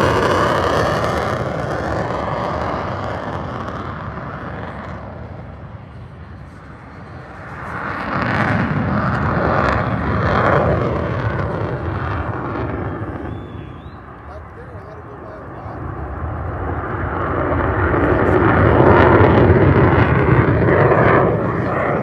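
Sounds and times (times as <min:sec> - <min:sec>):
jet fighter flying past: 0:00.0 - 0:22.0.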